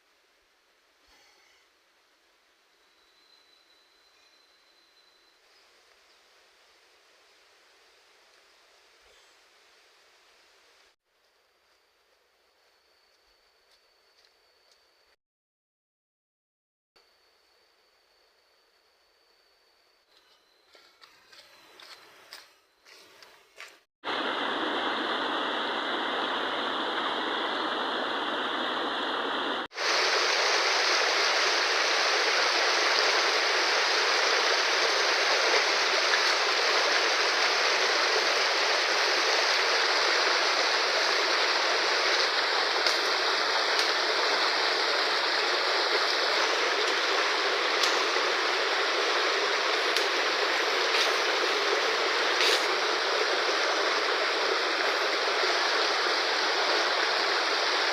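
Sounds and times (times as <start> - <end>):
river water rushing: 24.1 - 57.9.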